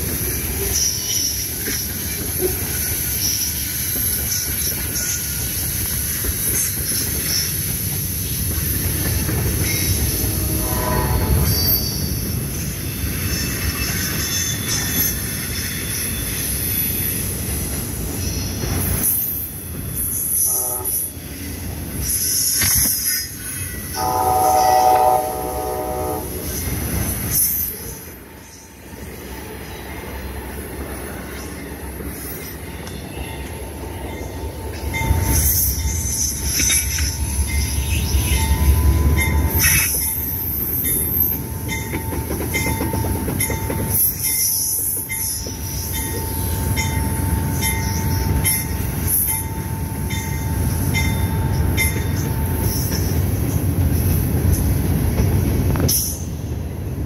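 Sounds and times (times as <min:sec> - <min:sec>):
passenger train arriving: 0:00.0 - 0:57.0
high wheel squeal: 0:09.6 - 0:17.4
train horn chord: 0:10.3 - 0:11.5, 0:20.5 - 0:21.1, 0:24.0 - 0:26.5
wheels clacking over rail joints: 0:30.9 - 0:47.0.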